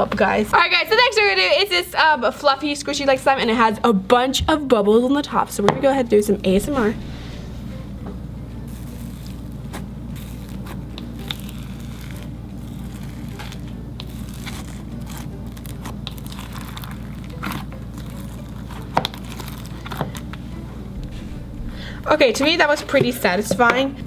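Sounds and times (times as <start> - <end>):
slime squishing and crackling: 8.7 - 20.4.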